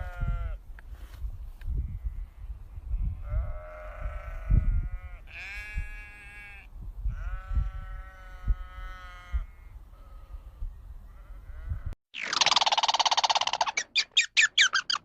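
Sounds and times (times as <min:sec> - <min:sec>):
sheep bleating: 0:03.2 - 0:10.4.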